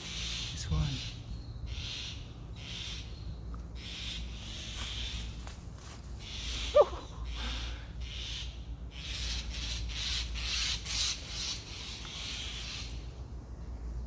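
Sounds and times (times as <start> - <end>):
rustling and rubbing from handling: 4.4 - 6.7
fledgling bird call: 6.2 - 13.1.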